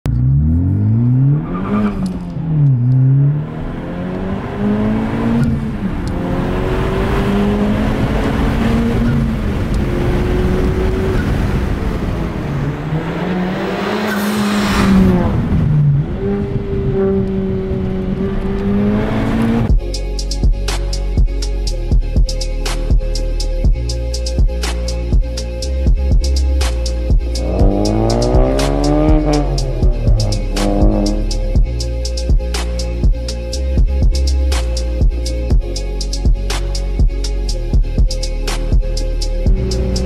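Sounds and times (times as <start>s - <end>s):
car engine revving through gears: 0.1s - 19.7s, 26.6s - 31.6s, 39.4s - 40.0s.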